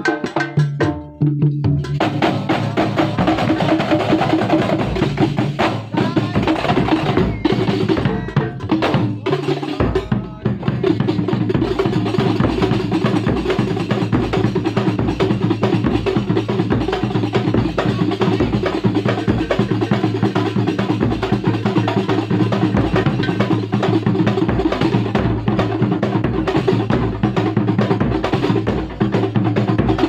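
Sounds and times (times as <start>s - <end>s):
hand-struck frame drums: 0.0s - 30.0s.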